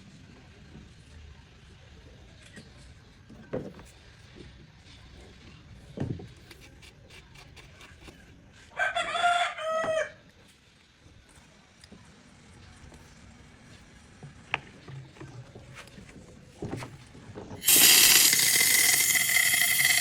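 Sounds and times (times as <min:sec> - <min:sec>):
rooster crowing: 0:08.7 - 0:10.2.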